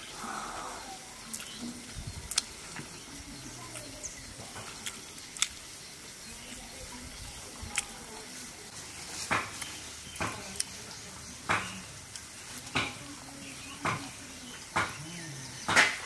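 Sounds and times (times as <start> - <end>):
man chewing food: 0.0 - 10.8, 12.0 - 12.6.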